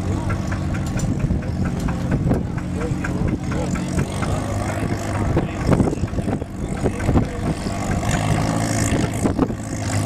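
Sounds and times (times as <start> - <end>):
tractor engine running: 0.0 - 10.0
short knocks and clatters: 0.2 - 9.2.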